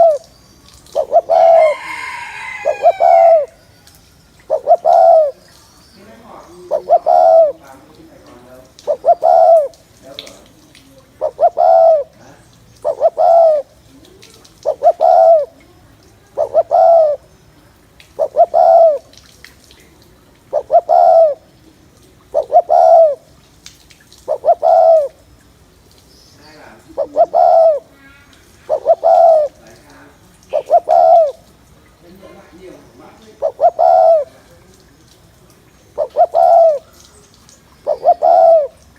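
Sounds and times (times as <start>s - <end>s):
dove cooing: 0.0s - 3.6s, 4.4s - 5.5s, 6.3s - 9.9s, 11.1s - 17.3s, 18.1s - 19.1s, 20.2s - 23.4s, 24.2s - 25.3s, 26.6s - 31.6s, 32.2s - 34.6s, 35.8s - 37.1s, 37.8s - 38.9s.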